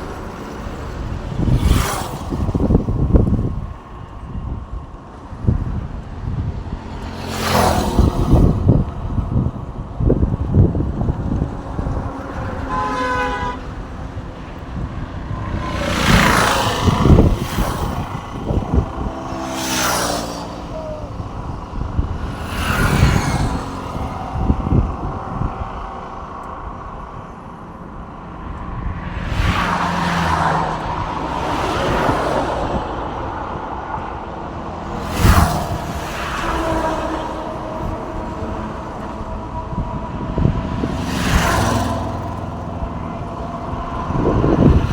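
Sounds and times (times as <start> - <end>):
cars and trucks passing: 0.0 - 44.9
short horn toot: 12.6 - 13.8.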